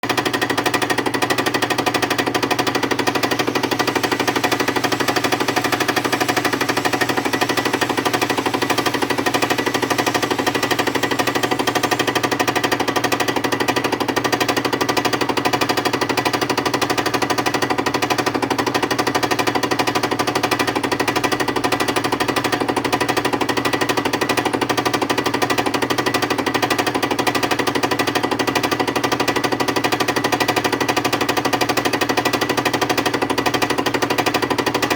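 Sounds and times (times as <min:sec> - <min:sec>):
milling machine whine: 0:00.7 - 0:15.3.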